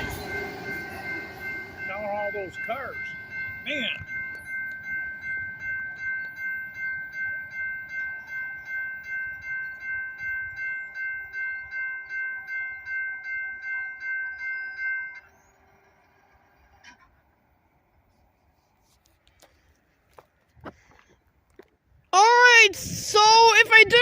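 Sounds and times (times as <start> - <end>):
railroad crossing bell ringing: 0.0 - 16.7, 22.2 - 24.0.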